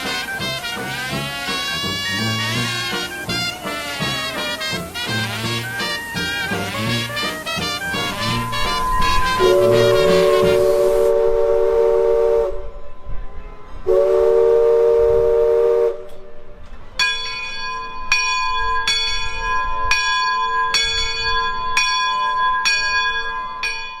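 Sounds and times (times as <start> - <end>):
steam whistle chord: 0.0 - 16.5
bell ringing: 2.5 - 10.8, 17.0 - 24.0.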